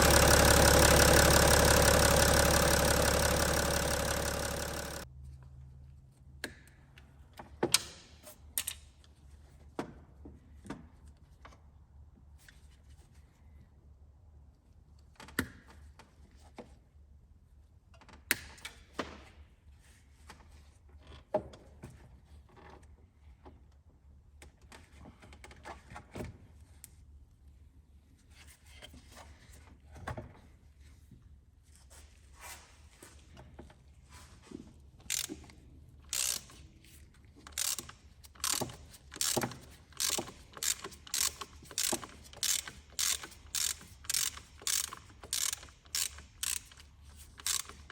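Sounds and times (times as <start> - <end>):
ratchet wrench clicking: 0.0 - 5.0, 35.1 - 35.4, 36.1 - 36.6, 37.5 - 47.9.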